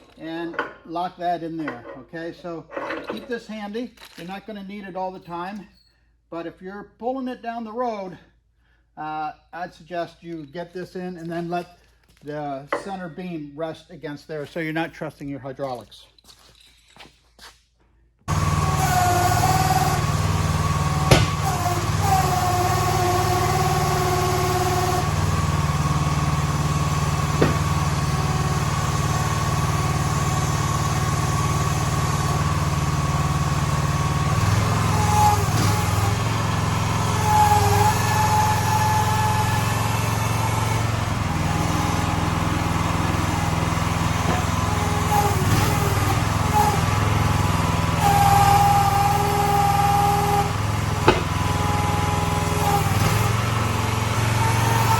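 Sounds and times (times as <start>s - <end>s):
whining tone: 18.3s - 30.5s, 34.4s - 54.9s
small engine running: 18.3s - 54.9s.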